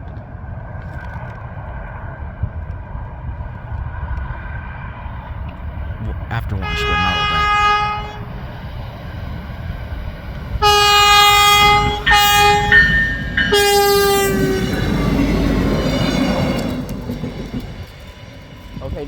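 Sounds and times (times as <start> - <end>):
train rumbling past: 2.9 - 19.0
train horn blasts: 6.6 - 8.7, 10.5 - 15.6.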